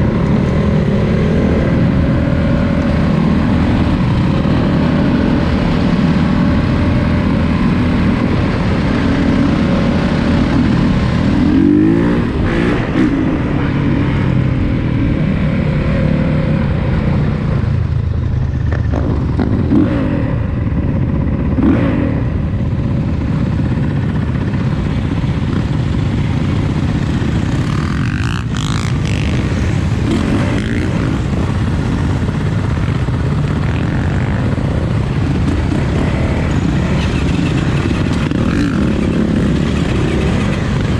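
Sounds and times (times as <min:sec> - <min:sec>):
dirt bike engine revving: 0:35.3 - 0:40.9.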